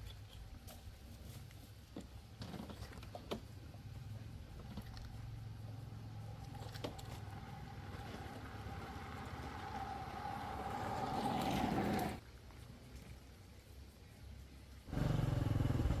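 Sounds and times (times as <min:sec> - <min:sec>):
vehicle engine running: 0:14.9 - 0:16.0.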